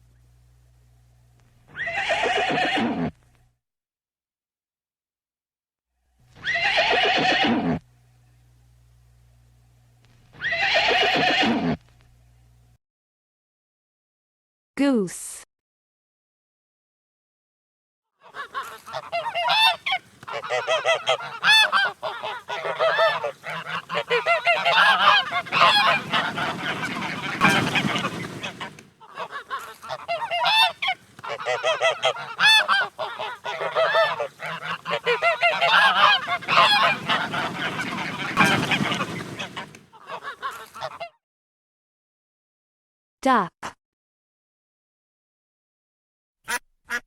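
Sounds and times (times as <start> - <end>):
geese honking: 18.2 - 41.1.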